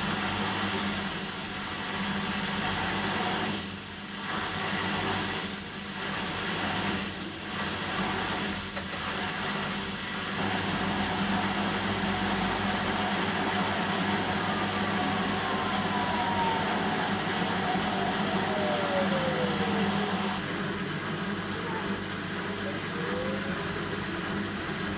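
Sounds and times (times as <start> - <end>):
washing machine motor hum: 0.0 - 24.9
tone gliding down: 13.6 - 20.4.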